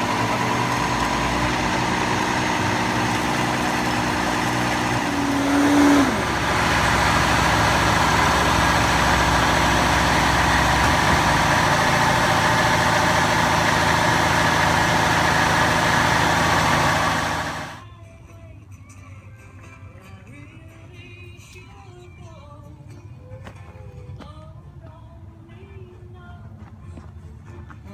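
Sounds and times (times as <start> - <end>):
heavy machine engine running: 0.0 - 17.8.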